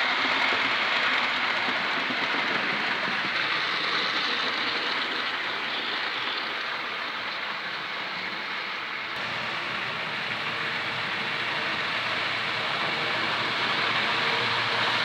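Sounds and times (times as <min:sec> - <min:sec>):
model train motor and wheels: 0:09.2 - 0:15.0.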